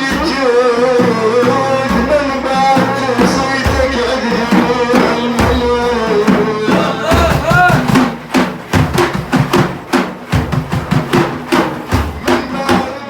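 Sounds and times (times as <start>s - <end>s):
person singing devotional song: 0.0s - 8.0s, 12.1s - 13.0s
hand drums beating: 0.0s - 13.0s.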